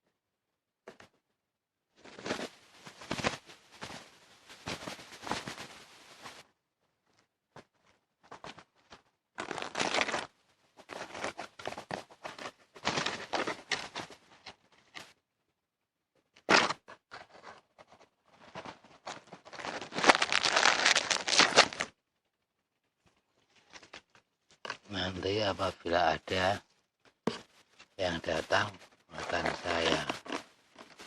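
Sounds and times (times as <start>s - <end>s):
rustling crinkling noise: 1.9s - 15.4s, 16.1s - 31.0s.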